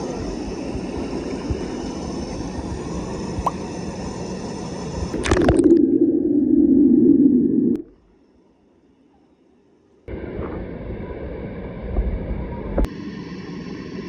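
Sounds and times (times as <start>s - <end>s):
muffled underwater rumble: 0.0s - 8.0s, 10.1s - 12.9s
water sloshing and gurgling: 5.1s - 8.0s
water splash: 5.2s - 6.4s.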